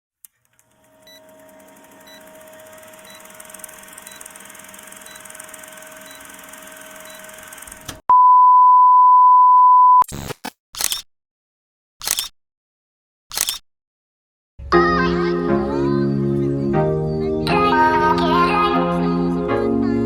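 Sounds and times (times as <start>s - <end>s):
loud single-pitched beep: 8.1s - 10.1s.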